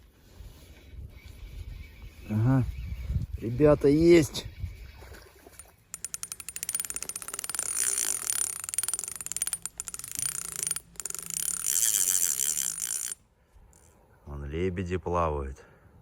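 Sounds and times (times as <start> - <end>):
fishing reel clicking: 5.6 - 13.9.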